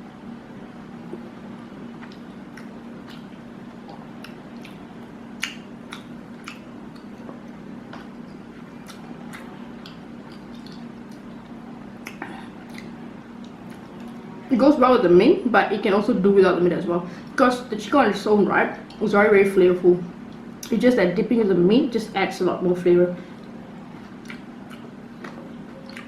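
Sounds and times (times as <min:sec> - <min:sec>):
person chewing food: 0:01.9 - 0:14.2, 0:23.4 - 0:26.0.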